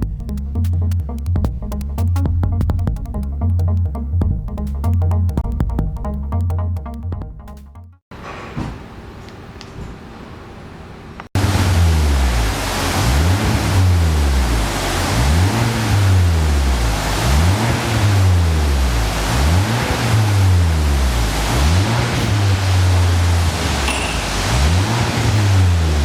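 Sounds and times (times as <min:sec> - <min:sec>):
car engine revving in blips: 0:11.4 - 0:26.0.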